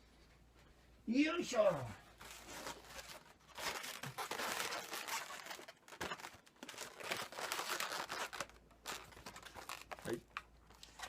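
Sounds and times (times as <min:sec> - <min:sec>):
rubber balloons rubbing and squeaking: 0:02.0 - 0:10.2.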